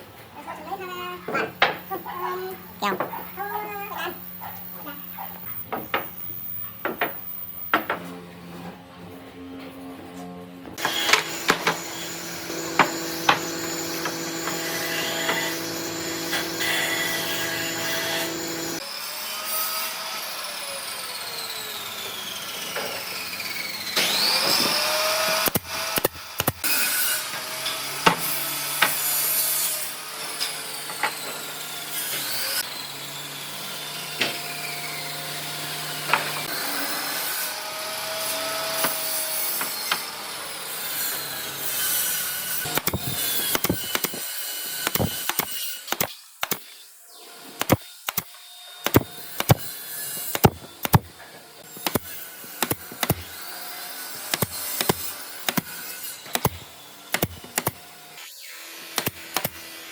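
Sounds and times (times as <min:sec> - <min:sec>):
power tool whining: 0:10.8 - 0:46.0.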